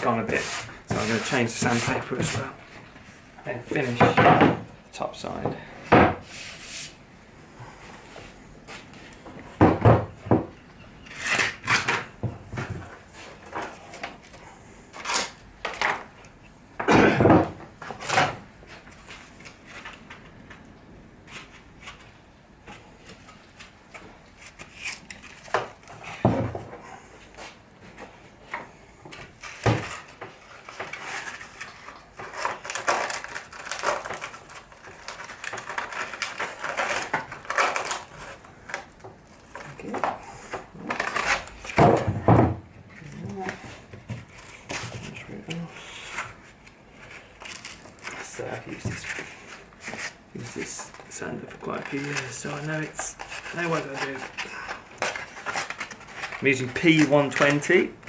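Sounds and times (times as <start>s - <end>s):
rubbing and scraping: 0.0s - 4.2s, 6.2s - 7.0s, 11.0s - 14.0s, 29.2s - 42.0s, 43.3s - 57.7s.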